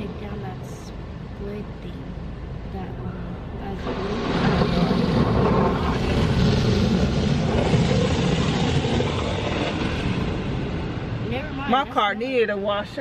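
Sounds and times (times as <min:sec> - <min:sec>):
car wash machinery rushing: 0:03.7 - 0:13.0.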